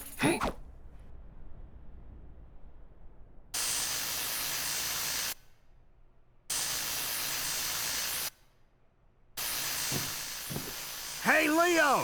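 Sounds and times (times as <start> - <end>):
hissing bursts: 6.5 - 8.4, 9.4 - 12.0.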